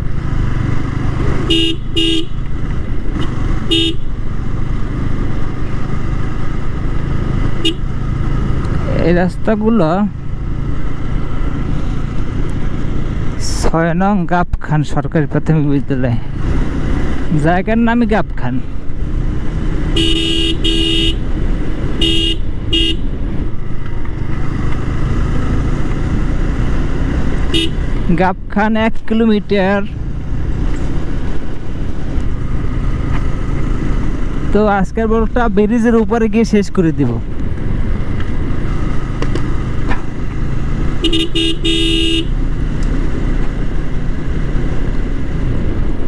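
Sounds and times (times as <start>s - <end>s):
motorcycle engine running: 0.0s - 13.4s, 18.7s - 28.6s, 37.2s - 46.0s
road noise: 0.0s - 46.0s
vehicle horn beeps: 1.5s - 2.4s, 20.0s - 21.2s, 22.0s - 23.0s, 41.0s - 42.3s
short horn beeps: 41.0s - 42.3s.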